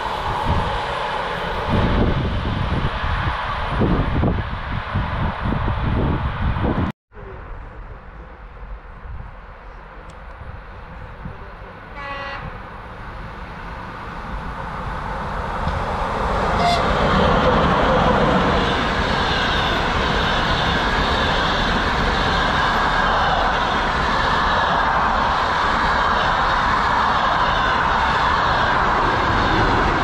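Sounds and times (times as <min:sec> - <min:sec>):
train passing rumble: 0:00.0 - 0:30.0
train horn blast: 0:11.9 - 0:12.6, 0:16.4 - 0:17.4.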